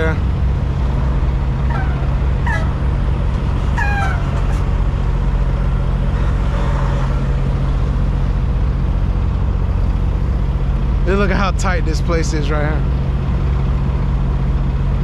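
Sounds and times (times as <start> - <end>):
truck engine idling: 0.0 - 15.0
high falling squeals: 1.5 - 4.8.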